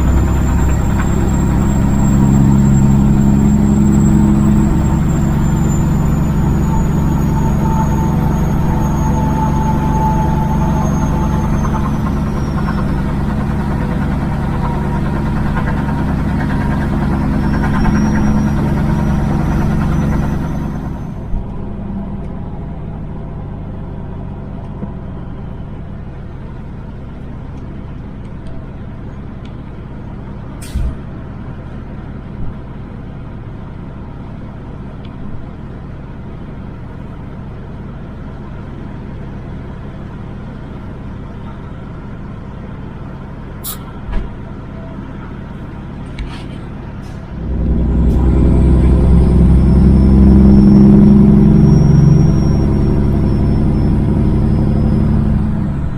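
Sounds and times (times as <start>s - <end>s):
high engine whine: 0.0s - 55.9s
truck diesel engine running: 0.0s - 55.9s
brief sharp noise: 30.6s - 31.0s, 43.6s - 44.0s.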